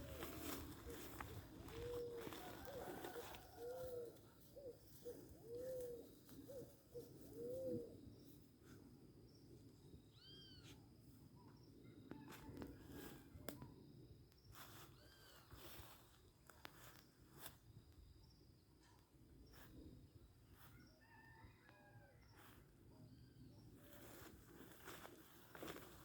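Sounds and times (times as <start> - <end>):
faint hoot-like animal calls: 0.0 - 8.4, 10.1 - 10.8.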